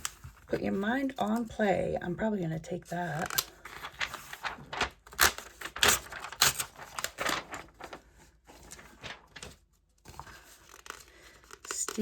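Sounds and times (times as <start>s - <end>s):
magazine pages rustling: 3.0s - 12.0s.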